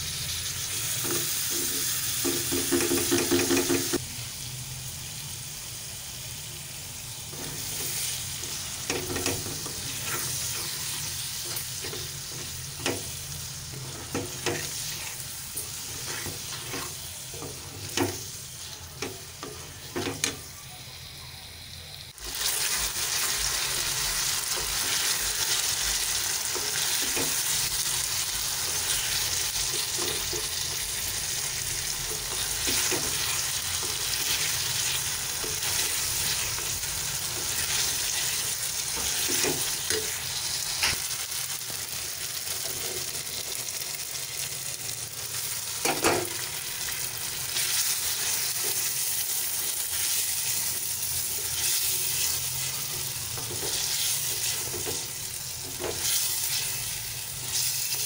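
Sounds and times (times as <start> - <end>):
food sizzling in a pan: 0.0 - 58.0
wooden spoon knocking a pan: 2.2 - 4.0.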